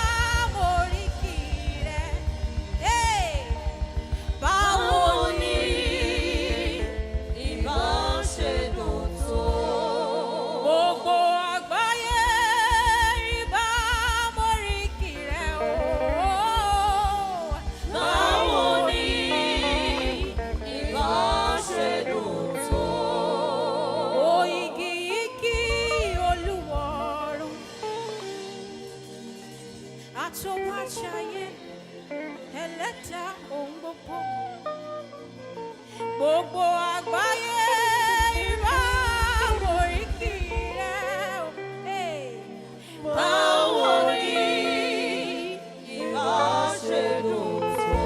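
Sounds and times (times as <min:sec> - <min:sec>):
band accompaniment: 0:00.0 - 0:09.9, 0:11.8 - 0:29.3
low bass pulse: 0:00.0 - 0:10.1, 0:12.2 - 0:22.0
singer with heavy vibrato: 0:00.0 - 0:27.8.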